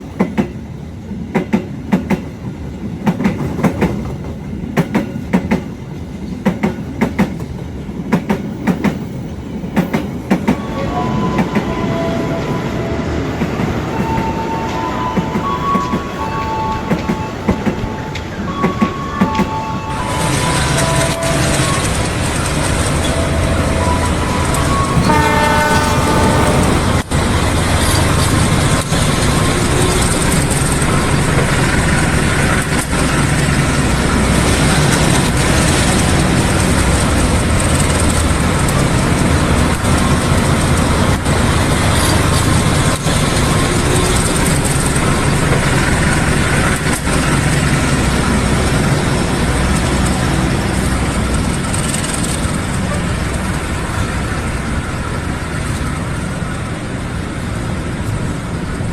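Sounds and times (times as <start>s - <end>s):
train rumble and wheel clatter: 0.0s - 58.9s
train horn: 10.6s - 22.2s, 23.0s - 27.1s.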